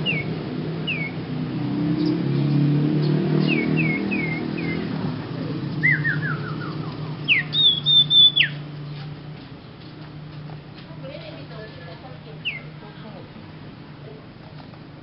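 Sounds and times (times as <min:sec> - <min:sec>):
songbird whistling song: 0:00.0 - 0:01.3, 0:01.9 - 0:05.1, 0:05.7 - 0:08.6, 0:12.4 - 0:12.8
steady low hum: 0:00.0 - 0:15.0.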